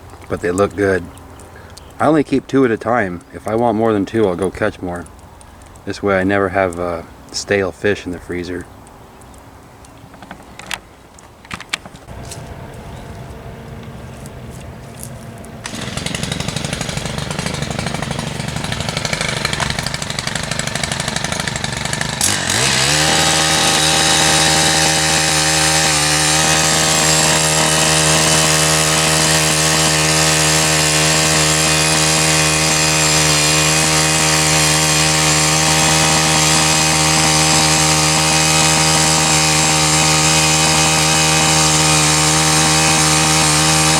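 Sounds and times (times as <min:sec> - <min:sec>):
engine high-revving drone: 0:12.1 - 0:19.8.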